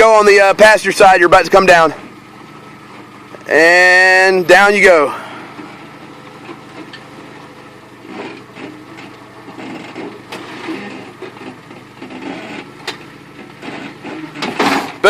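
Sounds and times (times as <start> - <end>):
engine humming: 0.0 - 15.0
tires scraping on rock: 0.0 - 15.0.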